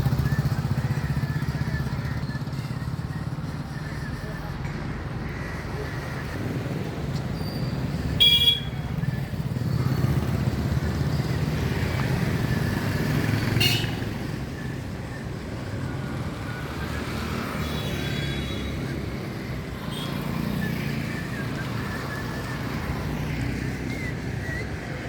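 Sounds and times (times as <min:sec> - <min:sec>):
vehicle engines running: 0:00.0 - 0:25.0
car horn toots: 0:08.2 - 0:08.8.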